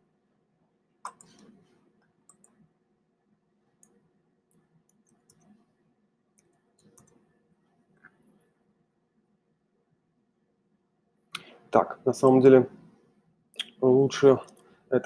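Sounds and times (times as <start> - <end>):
faint computer mouse clicks: 1.0 - 1.6, 2.3 - 2.6, 3.8 - 5.6, 6.4 - 7.2.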